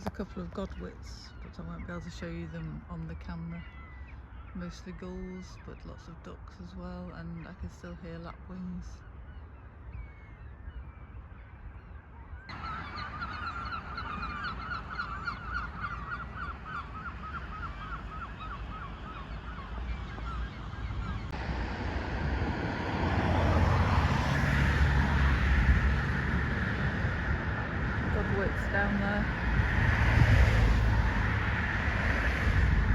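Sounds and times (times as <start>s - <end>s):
road traffic rumble: 0.0s - 9.4s, 12.5s - 32.9s
waterbirds calling: 0.0s - 21.5s.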